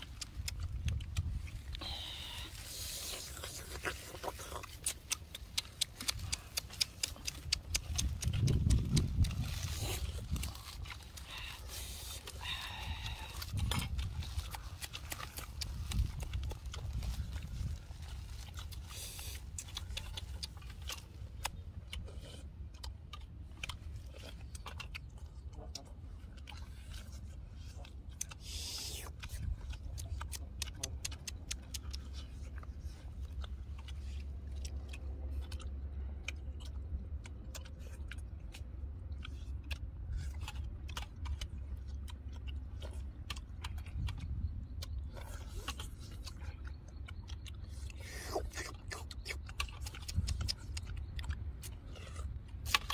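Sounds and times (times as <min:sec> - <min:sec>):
low rumble: 0:00.0 - 0:28.3
people chewing and smacking: 0:00.0 - 0:52.9.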